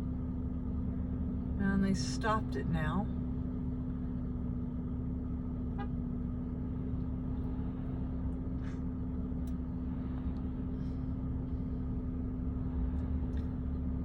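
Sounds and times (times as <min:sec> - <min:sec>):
low engine drone: 0:00.0 - 0:14.0
low rumble: 0:00.0 - 0:14.0.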